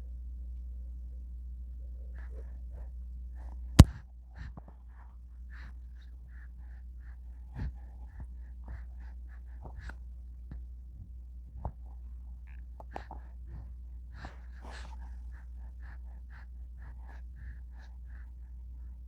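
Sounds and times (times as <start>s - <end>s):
low steady hum: 0.0s - 3.9s
baby breathing softly: 12.9s - 19.0s.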